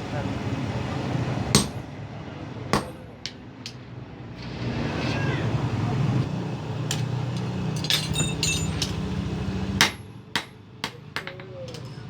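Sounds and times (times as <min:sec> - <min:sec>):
hammer striking steel on anvil: 0:01.6 - 0:01.8, 0:02.7 - 0:03.8, 0:09.8 - 0:11.9.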